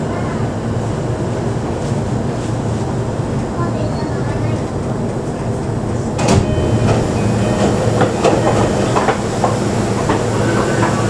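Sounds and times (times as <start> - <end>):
train running rumble: 0.0 - 11.0
wheel clacks over track joints: 6.2 - 11.0.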